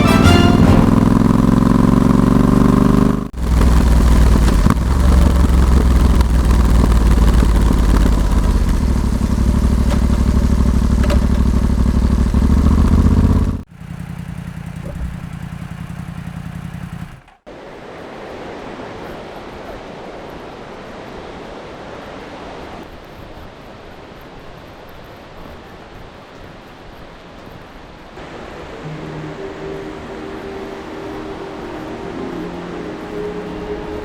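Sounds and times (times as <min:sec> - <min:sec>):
motorcycle engine running: 0:00.0 - 0:17.4.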